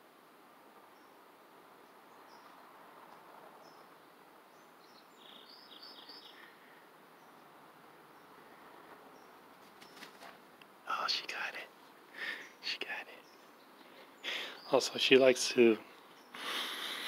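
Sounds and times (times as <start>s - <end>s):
small bird chirping: 3.6s - 7.5s, 12.2s - 16.5s.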